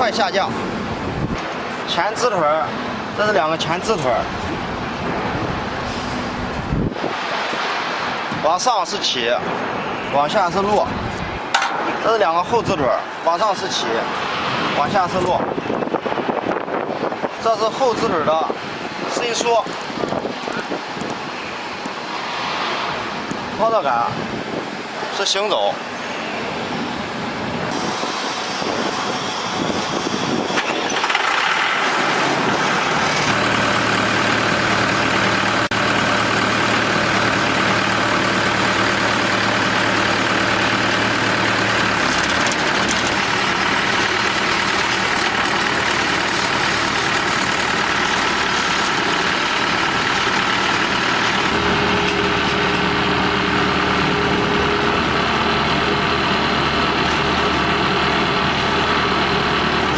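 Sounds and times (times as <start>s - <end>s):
drilling rig engine drone: 27.7s - 59.9s.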